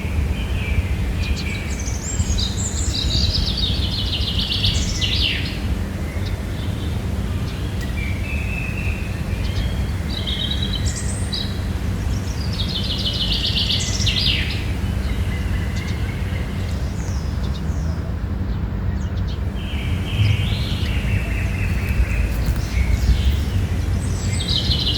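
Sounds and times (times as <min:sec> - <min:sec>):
songbirds singing trills: 0:00.0 - 0:24.9
steady low rumble: 0:14.6 - 0:24.9.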